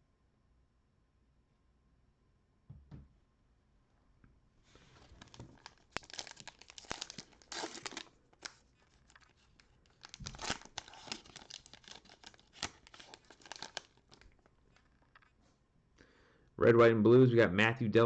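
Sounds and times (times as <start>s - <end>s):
cellophane wrapper crinkling: 4.8s - 15.4s.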